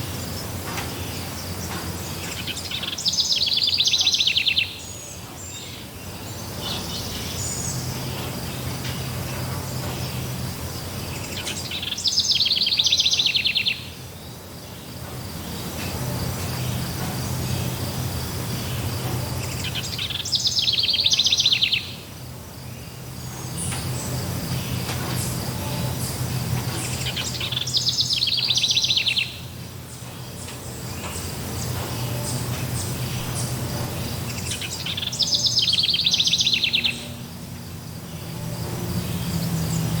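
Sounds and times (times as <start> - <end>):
birds chirping: 0.0 - 40.0
insects: 0.0 - 40.0.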